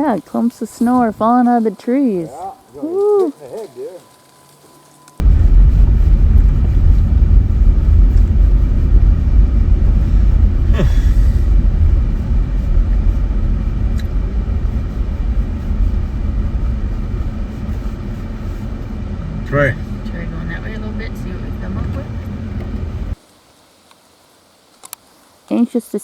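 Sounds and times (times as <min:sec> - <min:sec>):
car engine and tyres rumbling: 0:05.2 - 0:23.2.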